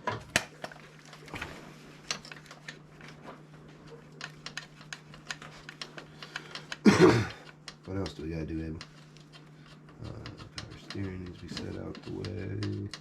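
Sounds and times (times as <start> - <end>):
steady low hum: 0.0 - 13.0
hand tools clicking on metal: 4.2 - 13.0.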